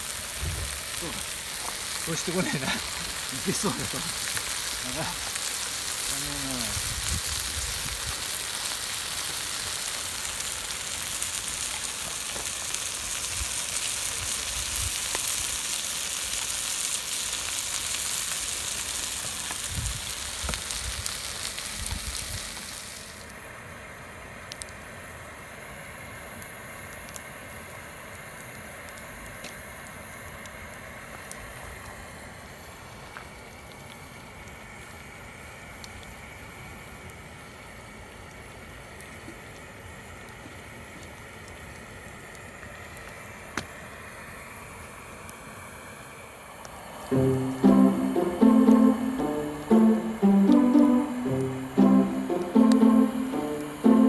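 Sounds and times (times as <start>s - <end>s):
food sizzling on griddle: 0.0s - 23.6s.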